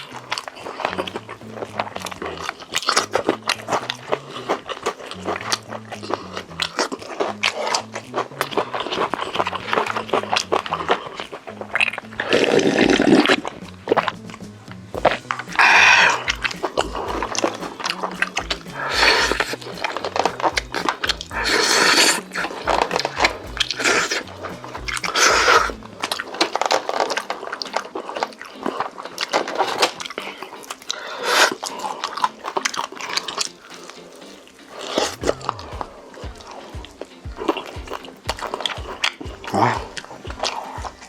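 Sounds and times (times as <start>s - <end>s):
background music with bass line: 0.0s - 27.3s, 31.4s - 41.0s
loud bites: 0.0s - 27.3s
wet chewing and crunching: 0.0s - 41.0s.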